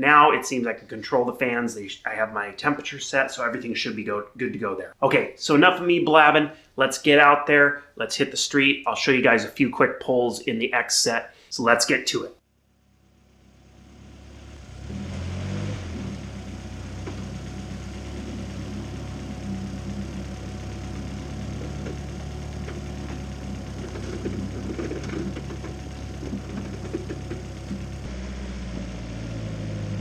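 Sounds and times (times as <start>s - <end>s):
car engine running at low revs: 12.8s - 30.0s.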